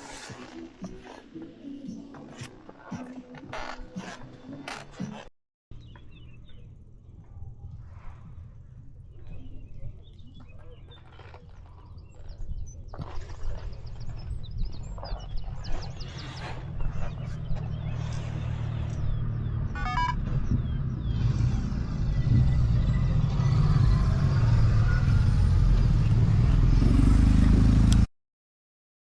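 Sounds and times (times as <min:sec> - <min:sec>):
motorcycle engine running: 0:05.8 - 0:28.1.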